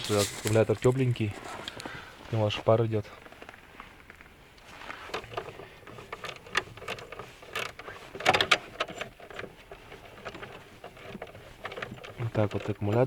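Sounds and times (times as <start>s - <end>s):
clunks: 4.9s - 13.0s.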